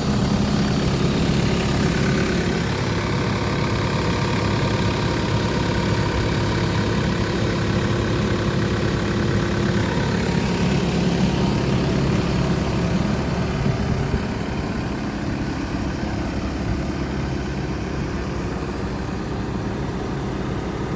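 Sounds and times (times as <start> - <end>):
excavator diesel engine running: 0.0 - 20.9.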